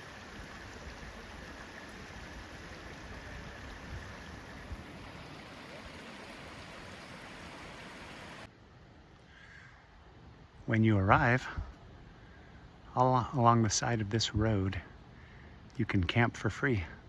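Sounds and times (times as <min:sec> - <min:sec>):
river water rushing: 0:00.0 - 0:08.5
wind on microphone: 0:00.1 - 0:06.0.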